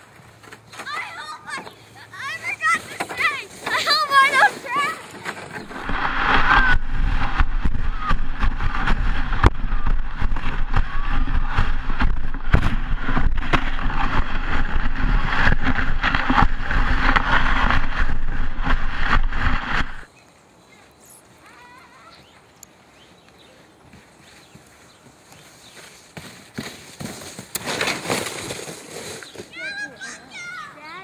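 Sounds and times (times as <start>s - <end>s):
sled scraping over snow: 0.0s - 20.1s, 23.9s - 30.7s
sled knocks and jolts: 0.4s - 20.1s, 25.7s - 29.8s.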